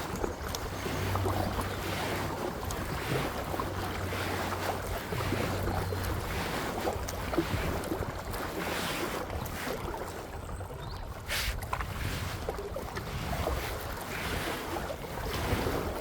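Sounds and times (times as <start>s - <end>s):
paddle strokes splashing water: 0.0s - 16.0s
wind rumbling on microphone: 0.0s - 16.0s.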